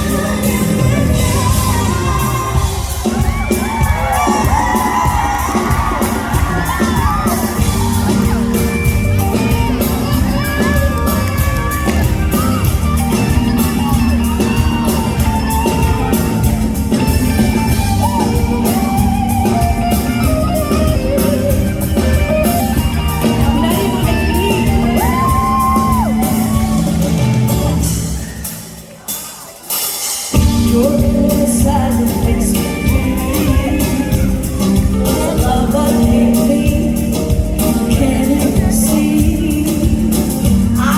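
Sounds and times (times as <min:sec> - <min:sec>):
woman singing: 0:00.0 - 0:27.0, 0:30.4 - 0:40.9
band playing: 0:00.0 - 0:40.9
audience shouting: 0:01.3 - 0:18.9.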